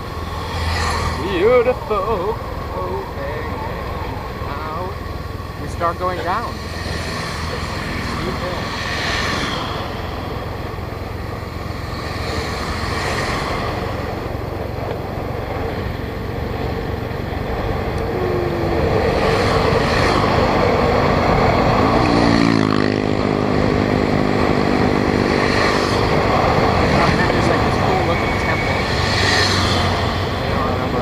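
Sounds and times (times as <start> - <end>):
motorbike engine: 6.3 - 31.0
wind rushing over microphone: 6.5 - 31.0.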